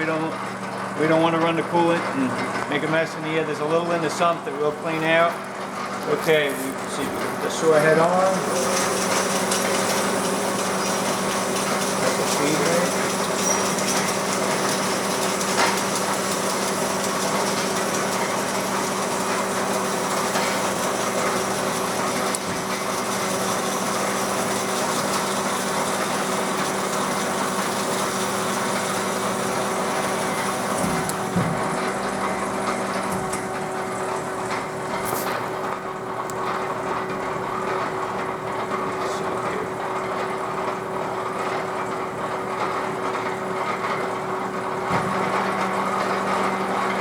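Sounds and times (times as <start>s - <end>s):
bandsaw humming and whining: 6.0s - 35.9s.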